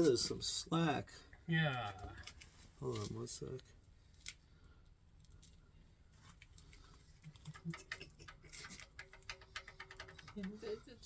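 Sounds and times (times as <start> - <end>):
small clicks and taps: 6.4 - 10.8.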